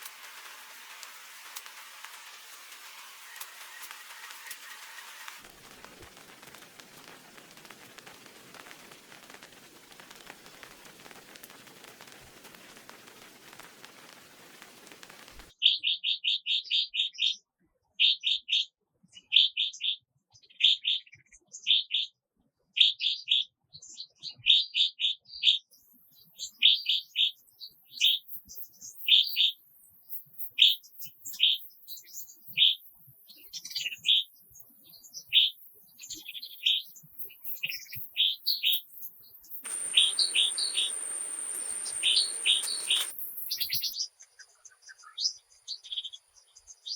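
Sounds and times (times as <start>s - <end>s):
rain hissing: 0.0s - 15.5s, 35.2s - 44.0s
bird chirping: 0.0s - 17.2s, 26.1s - 46.9s.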